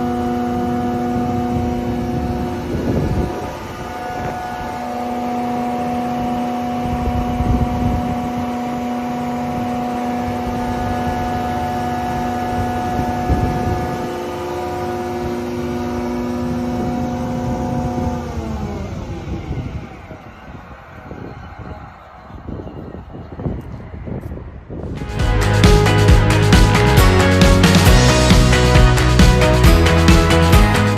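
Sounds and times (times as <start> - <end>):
planer cutting wood: 0.0 - 20.5.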